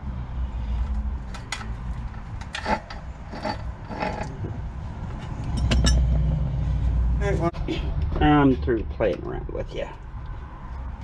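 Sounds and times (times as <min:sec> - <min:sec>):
metal tools clinking and scraping: 0:01.3 - 0:04.4, 0:05.1 - 0:06.2.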